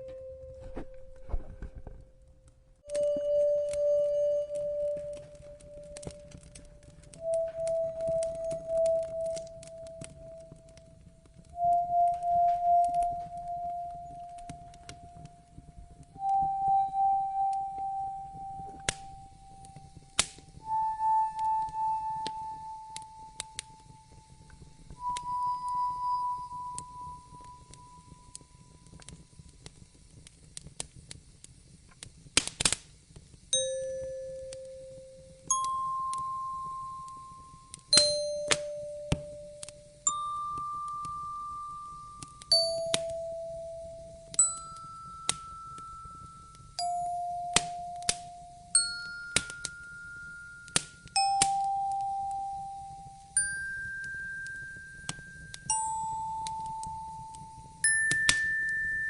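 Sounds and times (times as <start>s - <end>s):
wood fire crackling: 0.0s - 59.0s
bell-like chime ringing: 35.5s - 59.0s.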